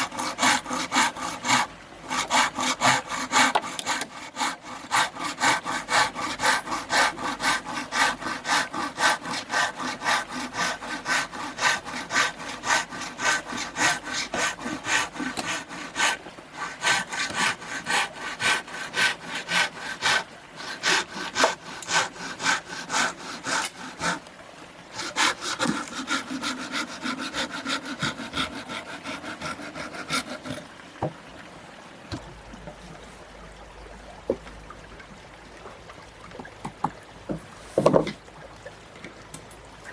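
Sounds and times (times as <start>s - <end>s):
hand saw cutting wood: 0.0s - 24.2s, 24.9s - 30.7s.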